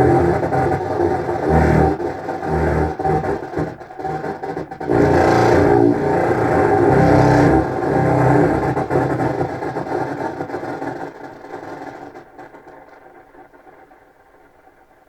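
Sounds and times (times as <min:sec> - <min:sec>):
grainy delayed clarinet drone: 0:00.0 - 0:10.5.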